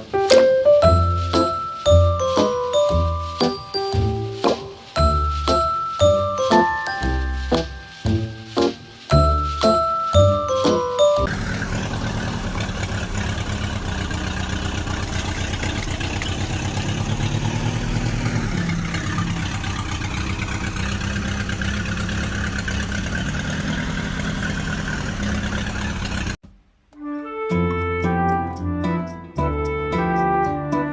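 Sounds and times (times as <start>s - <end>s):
tractor engine idling: 0.0s - 26.4s.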